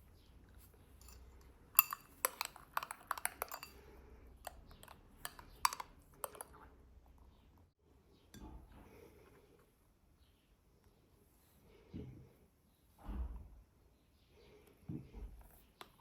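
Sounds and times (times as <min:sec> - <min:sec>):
utensils clinking against dishes: 0:00.9 - 0:06.5.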